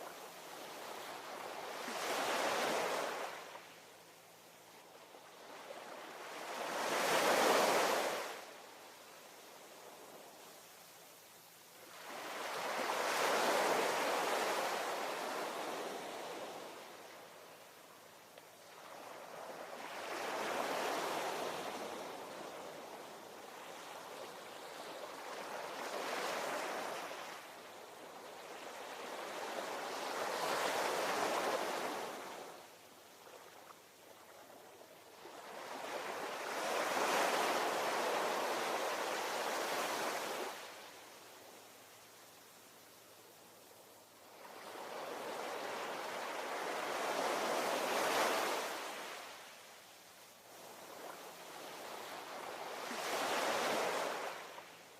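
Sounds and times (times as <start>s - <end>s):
ocean waves breaking on shore: 0.0s - 3.8s, 5.2s - 8.6s, 11.9s - 17.3s, 18.6s - 34.4s, 35.1s - 41.0s, 44.4s - 49.6s, 50.5s - 54.9s.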